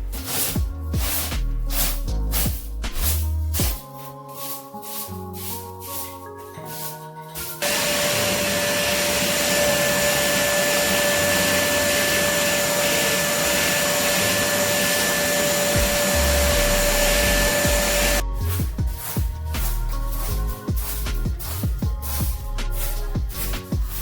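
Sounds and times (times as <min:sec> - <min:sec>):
vacuum cleaner running: 0:07.6 - 0:18.2.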